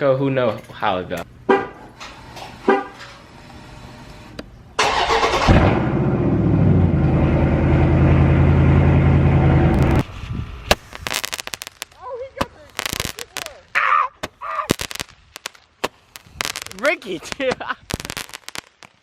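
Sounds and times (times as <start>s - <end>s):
car engine starting and running: 4.8s - 10.1s
sharp cracks: 9.7s - 19.0s.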